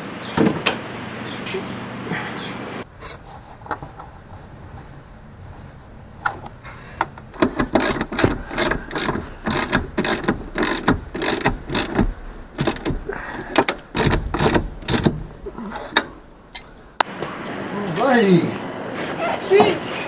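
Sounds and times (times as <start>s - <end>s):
ratcheting metal mechanism clicking: 6.2s - 17.0s.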